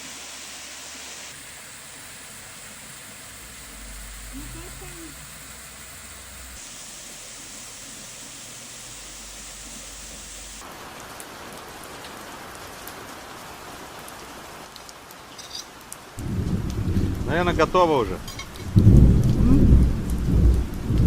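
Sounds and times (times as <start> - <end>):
steady rain falling: 10.6 - 21.0.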